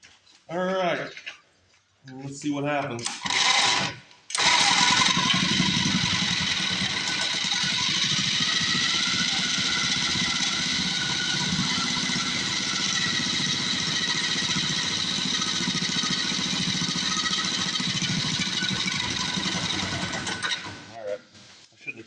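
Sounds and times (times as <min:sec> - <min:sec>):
small engine running: 0:03.1 - 0:21.0.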